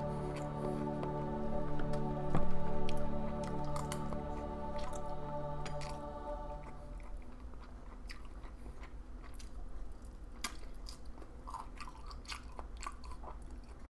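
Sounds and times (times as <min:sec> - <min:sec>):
chewing and mouth sounds: 0:04.8 - 0:13.9.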